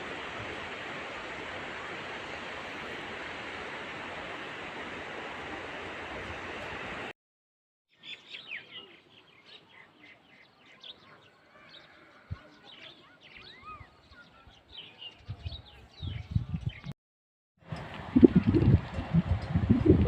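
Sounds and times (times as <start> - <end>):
low rumble: 18.0 - 20.0.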